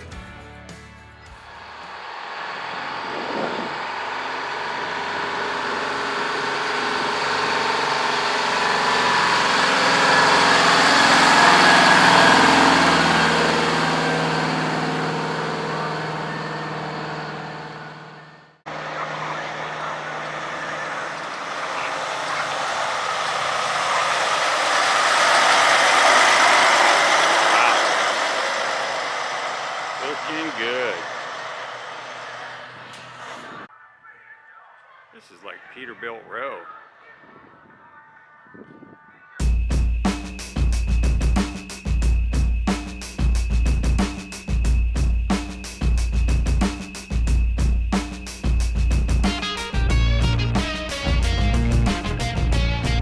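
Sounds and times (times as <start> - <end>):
truck engine approaching: 0.0 - 33.7, 39.4 - 53.0
diesel truck engine passing: 1.3 - 33.7, 48.4 - 53.0.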